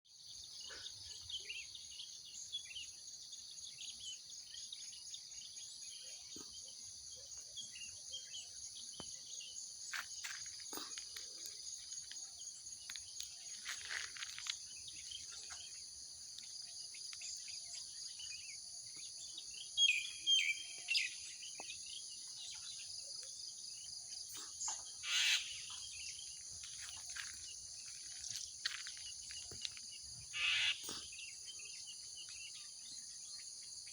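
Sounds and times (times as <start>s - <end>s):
high-pitched insect chorus: 0.1s - 33.9s
mynas calling loudly: 30.3s - 31.0s.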